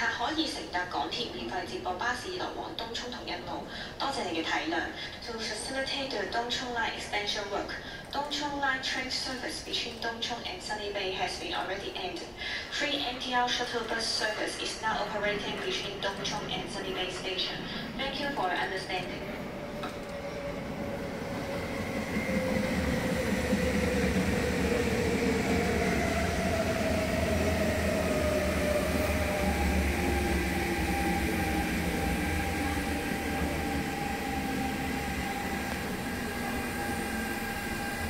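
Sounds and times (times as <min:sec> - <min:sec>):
train rumbling past: 0:13.6 - 0:38.0
train motor whine: 0:19.5 - 0:38.0.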